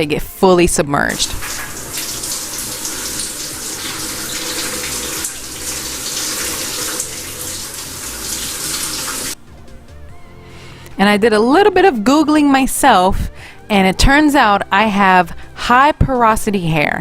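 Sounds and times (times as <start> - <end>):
water running from a faucet: 1.1 - 9.4.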